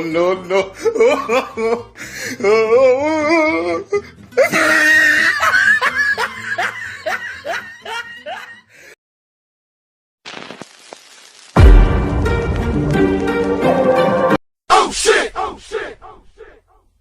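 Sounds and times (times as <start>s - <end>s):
person laughing: 0.4s - 1.9s, 3.9s - 8.7s.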